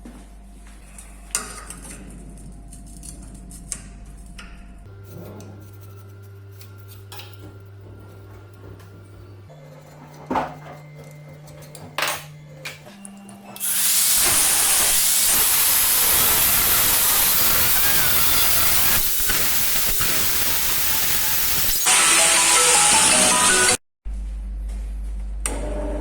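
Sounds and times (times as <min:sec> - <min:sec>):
loud steady hiss: 0:13.6 - 0:23.4.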